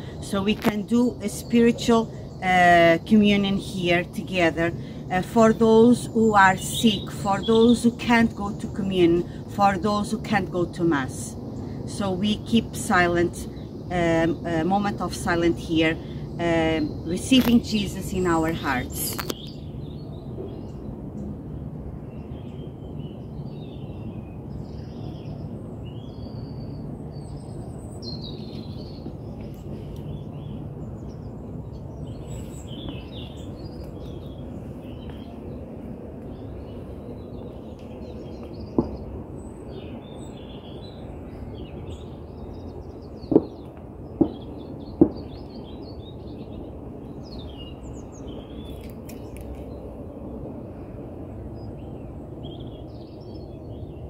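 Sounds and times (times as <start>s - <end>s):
small birds chirping: 10.2s - 21.3s, 22.1s - 49.9s, 51.5s - 54.0s.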